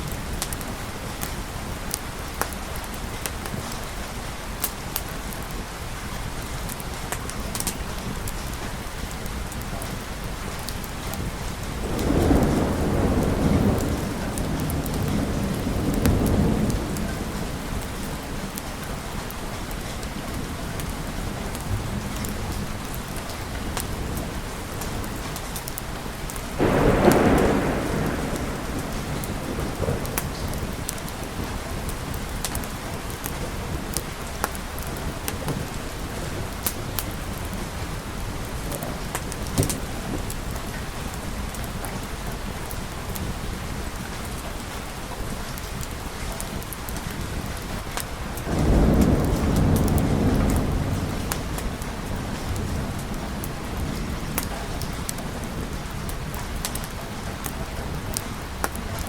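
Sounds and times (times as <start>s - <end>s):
steady rain: 0.0s - 59.0s
rolling thunder: 9.8s - 43.4s, 47.3s - 58.8s
sharp thunderclap: 11.0s - 18.8s, 26.5s - 33.9s, 48.5s - 56.8s.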